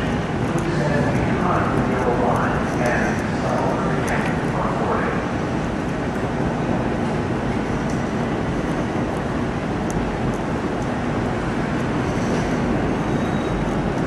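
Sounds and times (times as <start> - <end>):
commuter train running on tracks: 0.0 - 14.0.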